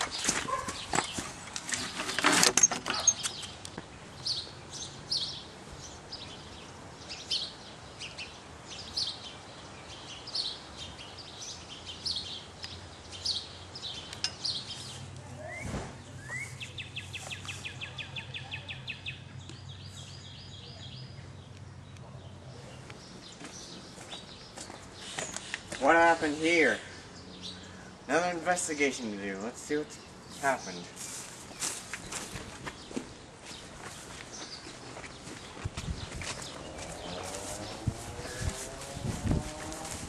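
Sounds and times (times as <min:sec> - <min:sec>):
wooden gate and metal latch rattling: 0:00.0 - 0:03.6
bird chirping: 0:02.9 - 0:39.8.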